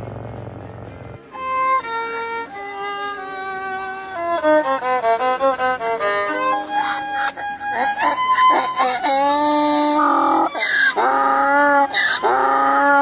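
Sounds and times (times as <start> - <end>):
low rumbling: 0.0 - 1.3
violin melody: 1.2 - 13.0.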